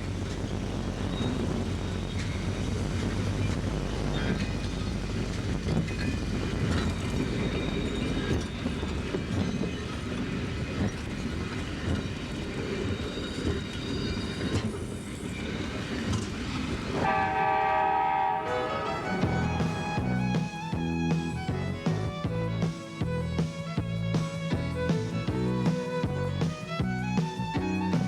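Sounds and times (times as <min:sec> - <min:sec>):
train rolling clatter: 0:00.0 - 0:28.0
train horn chord: 0:17.0 - 0:20.7.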